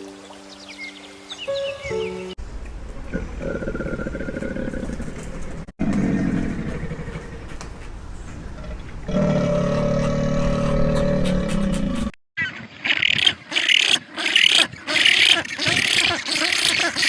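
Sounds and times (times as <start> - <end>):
low drawn-out animal calls: 3.0 - 7.6, 8.5 - 17.0.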